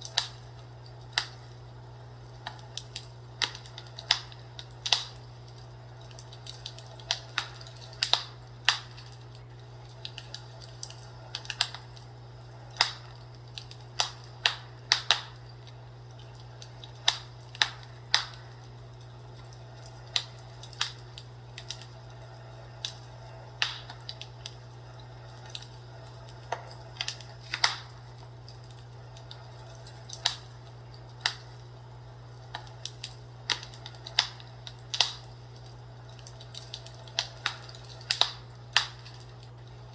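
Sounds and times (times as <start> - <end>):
steady low hum: 0.0 - 39.9
fireplace pops and snaps: 36.6 - 39.2.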